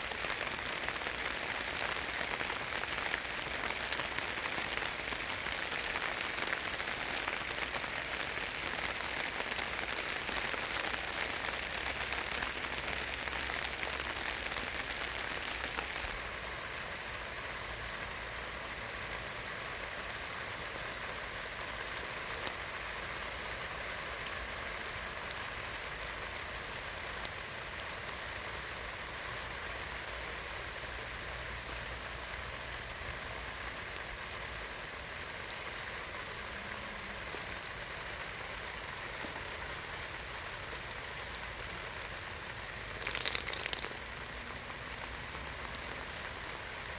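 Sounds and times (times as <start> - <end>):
rain pattering on a tarp: 0.0 - 46.9
heavy drops ticking: 42.5 - 46.5.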